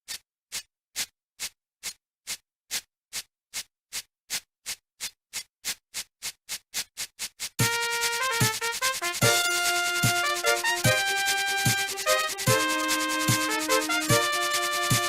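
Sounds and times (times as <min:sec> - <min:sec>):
music: 0:07.6 - 0:15.0.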